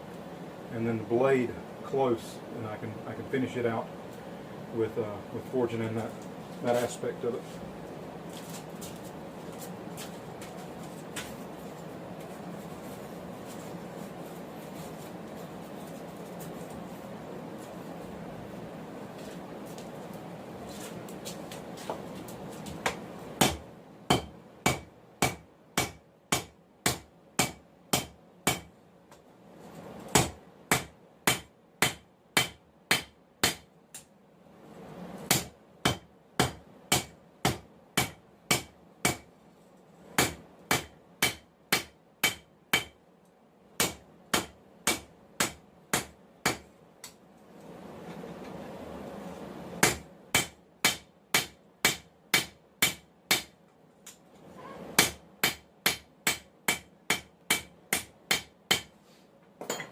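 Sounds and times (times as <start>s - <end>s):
hammer striking steel on anvil: 23.4s - 28.7s, 35.3s - 39.2s, 40.2s - 43.0s, 43.8s - 46.6s, 49.8s - 53.5s, 55.0s - 58.9s.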